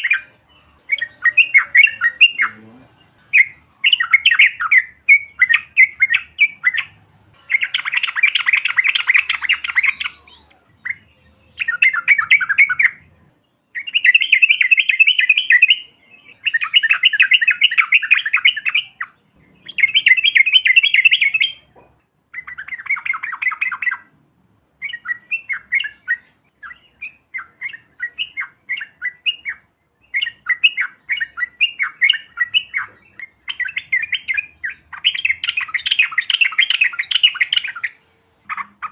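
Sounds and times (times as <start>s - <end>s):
bulbul bubbling song: 3.2s - 13.1s.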